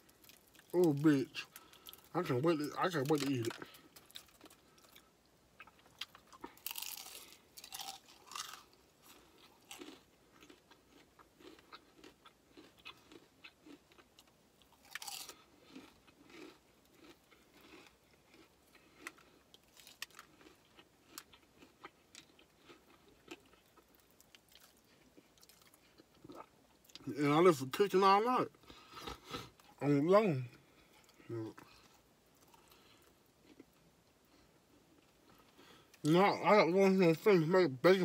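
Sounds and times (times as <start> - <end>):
soft chewing: 0.0 - 27.1, 28.5 - 36.1
crunchy bites of fried chicken: 2.9 - 27.0.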